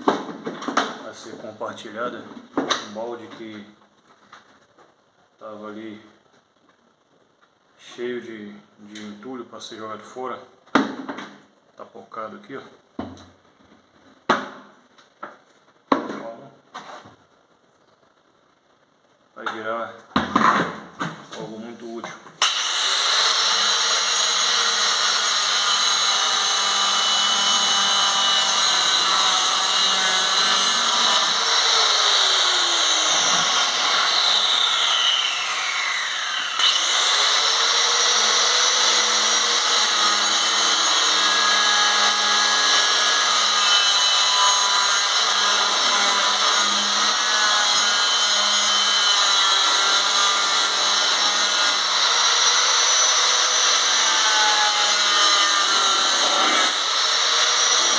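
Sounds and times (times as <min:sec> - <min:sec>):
power tool cutting plastic: 0:22.4 - 0:57.9.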